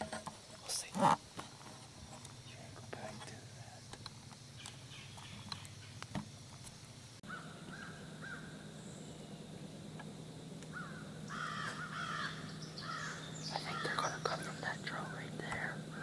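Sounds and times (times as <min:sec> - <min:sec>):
wild birds calling: 0:00.0 - 0:16.0.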